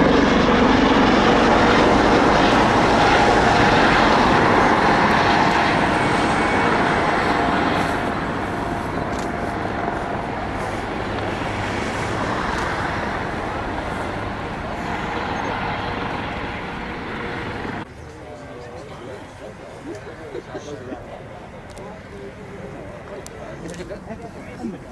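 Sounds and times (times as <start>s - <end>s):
loud engine noise: 0.0s - 17.9s.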